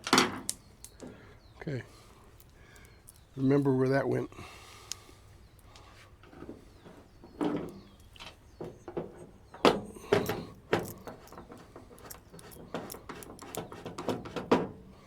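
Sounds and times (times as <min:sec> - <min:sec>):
metallic clicks and clanks: 0:07.4 - 0:14.7.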